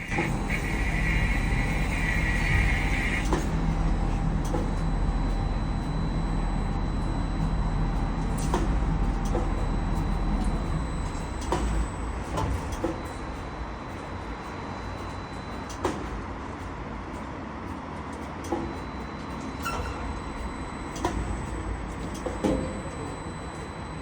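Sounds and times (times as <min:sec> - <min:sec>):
heavy vehicle engine running: 0:00.0 - 0:13.9.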